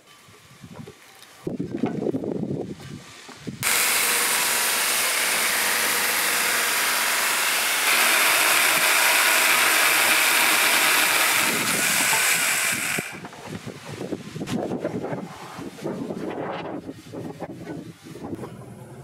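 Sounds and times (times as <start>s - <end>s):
chain saw cutting wood beam: 3.6s - 13.3s.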